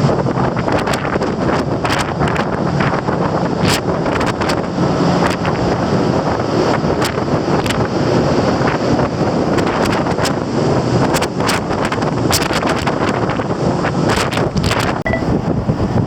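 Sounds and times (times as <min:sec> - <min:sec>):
ship's low hum: 0:00.0 - 0:16.0
wind buffeting microphone: 0:00.0 - 0:16.0.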